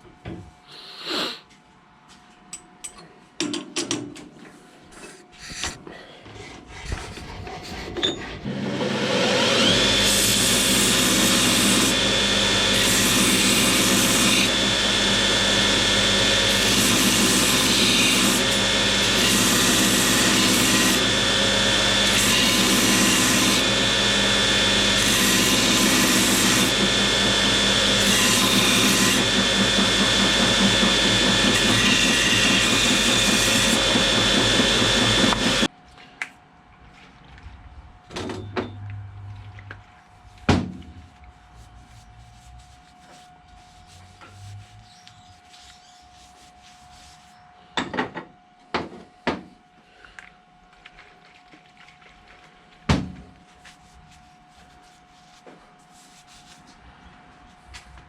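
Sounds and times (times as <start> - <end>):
power tool motor whining: 8.2 - 35.7.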